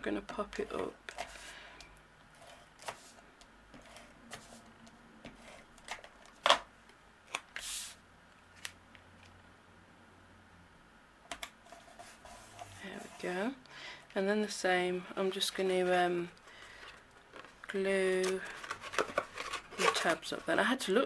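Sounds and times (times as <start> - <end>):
paper rustle: 16.7 - 20.5.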